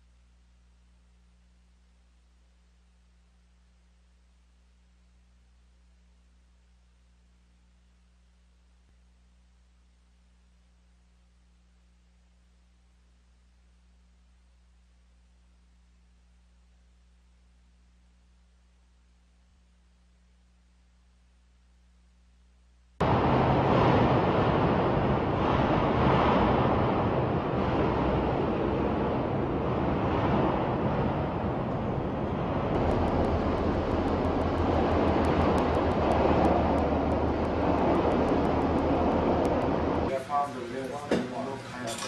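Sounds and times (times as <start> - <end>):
low steady hum: 0.0 - 42.0
wind and sea rushing: 23.0 - 40.2
fast ticking: 32.7 - 40.1.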